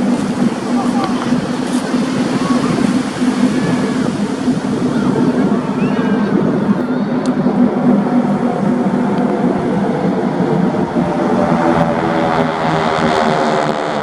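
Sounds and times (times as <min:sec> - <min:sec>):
propeller aircraft flying past: 0:00.0 - 0:14.0.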